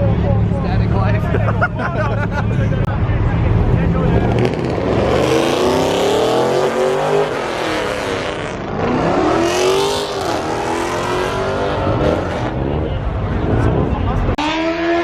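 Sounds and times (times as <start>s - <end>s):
car engine accelerating: 2.6s - 15.0s.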